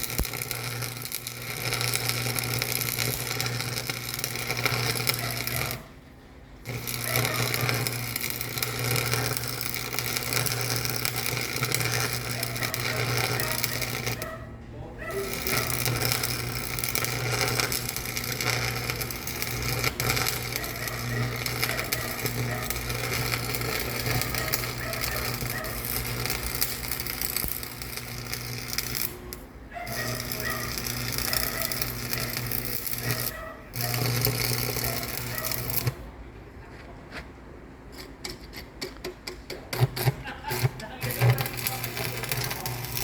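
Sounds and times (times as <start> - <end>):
machine running: 6.5 - 14.3, 40.2 - 43.0.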